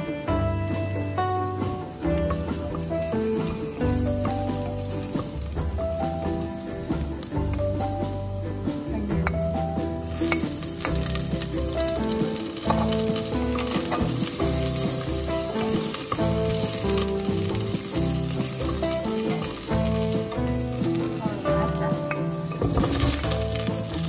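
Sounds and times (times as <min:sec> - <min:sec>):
food sizzling in hot oil: 0:00.0 - 0:24.0
wooden spoon stirring: 0:00.0 - 0:24.0.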